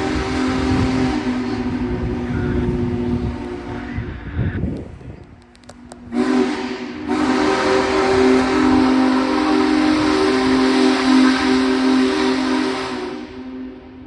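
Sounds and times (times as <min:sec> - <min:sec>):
steam whistle chord: 0:00.0 - 0:02.7, 0:06.1 - 0:14.0
steam hiss: 0:06.0 - 0:14.0.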